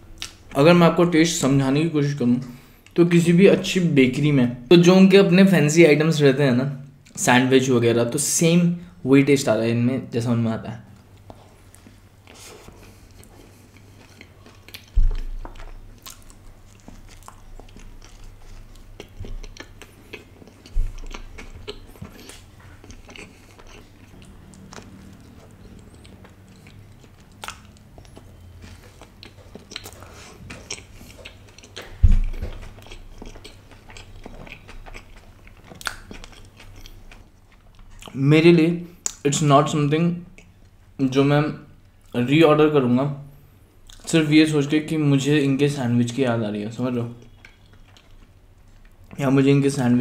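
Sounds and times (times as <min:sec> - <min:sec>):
wet chewing with crunches: 0:11.1 - 0:38.2, 0:47.2 - 0:49.2
dull low thumps: 0:20.7 - 0:21.1, 0:31.9 - 0:32.7.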